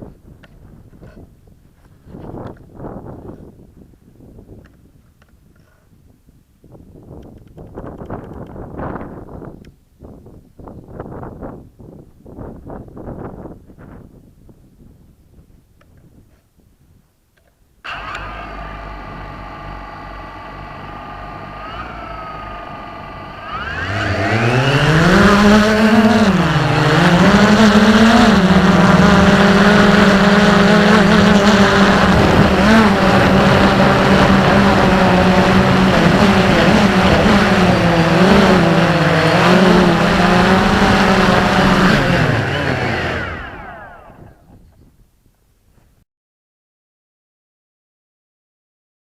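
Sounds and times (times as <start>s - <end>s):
drone motors whining: 17.9s - 44.8s.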